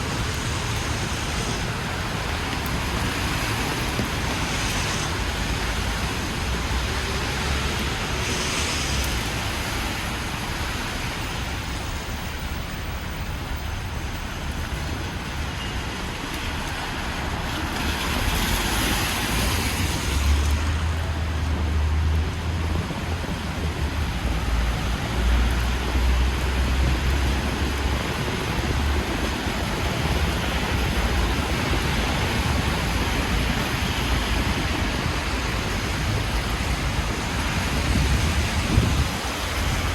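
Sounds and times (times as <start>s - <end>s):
rain hiss: 0.0s - 39.9s
tyres swishing on wet road: 0.0s - 39.9s
wind rumble on microphone: 17.3s - 39.9s.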